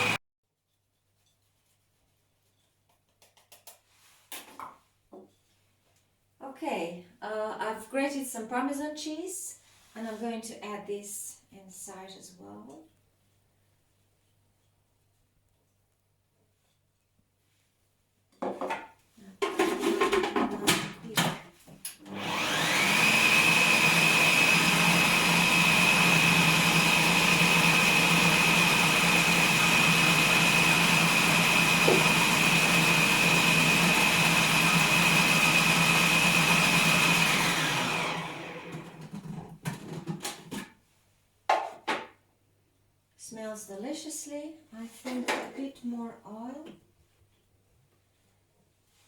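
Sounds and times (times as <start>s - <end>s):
food processor motor whining: 0.0s - 0.2s, 22.0s - 39.4s
food processor knocks and clatters: 18.4s - 21.4s.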